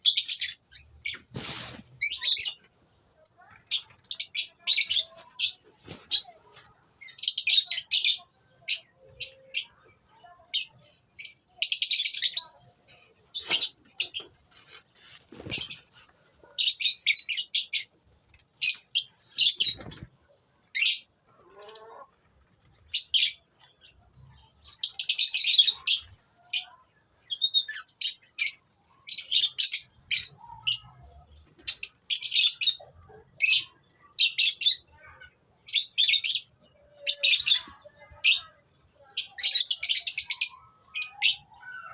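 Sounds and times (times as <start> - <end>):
lovebirds chirping and chattering: 0.0 - 41.9.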